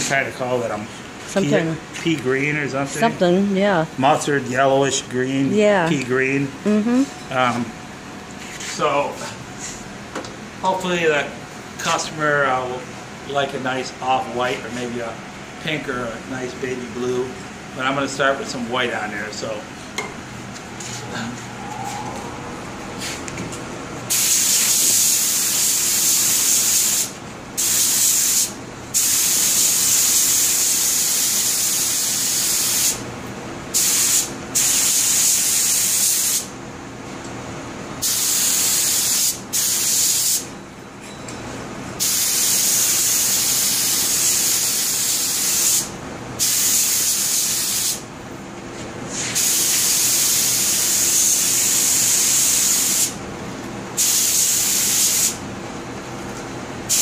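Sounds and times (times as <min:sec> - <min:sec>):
steady machine hum: 0:00.0 - 0:24.3
paint spray gun spraying: 0:24.1 - 0:33.0, 0:33.8 - 0:36.5, 0:38.0 - 0:40.4, 0:42.0 - 0:48.0, 0:49.3 - 0:53.2, 0:54.0 - 0:55.4.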